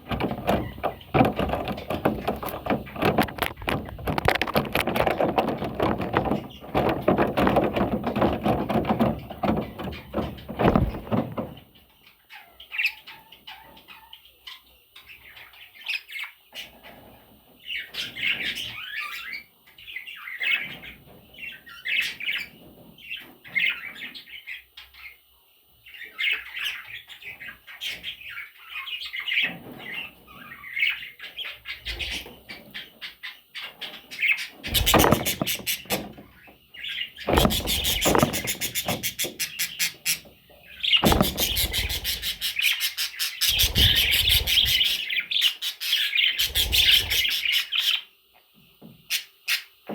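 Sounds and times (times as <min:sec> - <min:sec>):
parrot chicks chirping: 0:00.0 - 0:17.0, 0:25.8 - 0:48.1.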